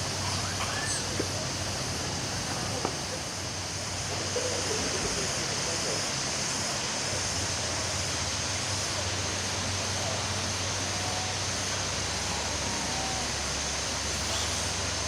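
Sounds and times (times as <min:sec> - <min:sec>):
forest hiss: 0:00.0 - 0:15.0
high-pitched insect drone: 0:10.3 - 0:15.0.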